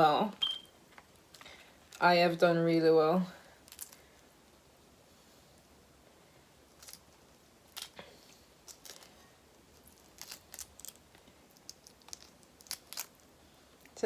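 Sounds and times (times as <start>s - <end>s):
faint clicks and crackles: 6.7s - 14.0s.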